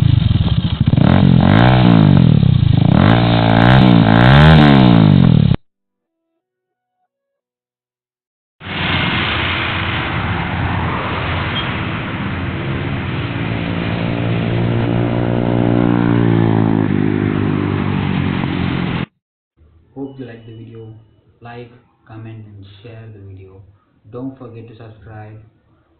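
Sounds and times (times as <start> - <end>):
motorcycle engine running: 0.0 - 5.6, 13.5 - 19.1.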